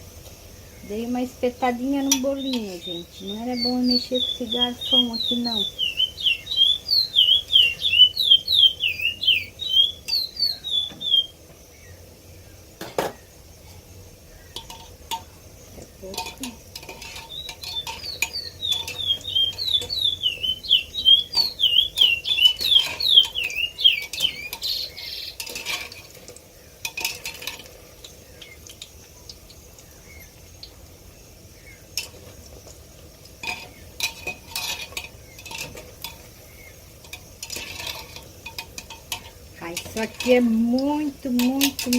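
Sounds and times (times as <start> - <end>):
bird chirping: 0.5 - 25.6, 27.8 - 32.8.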